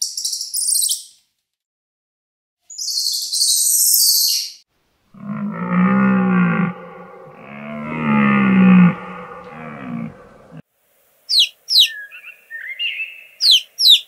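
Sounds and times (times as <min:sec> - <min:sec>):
animal low drawn-out call: 0:05.2 - 0:10.6.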